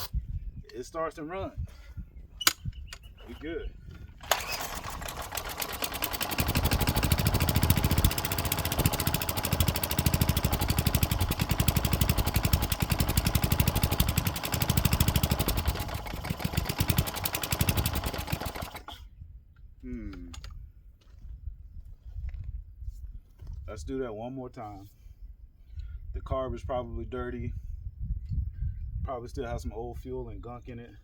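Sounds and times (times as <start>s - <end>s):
string trimmer engine running unevenly: 4.2s - 19.0s.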